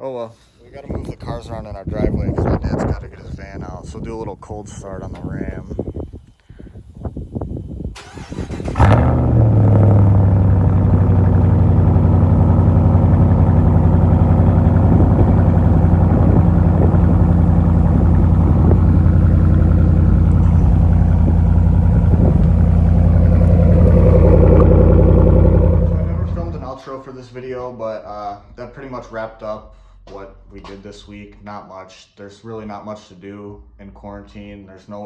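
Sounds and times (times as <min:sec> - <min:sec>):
truck engine cranking and starting: 0:07.9 - 0:26.7
engine idling loudly: 0:08.8 - 0:26.7.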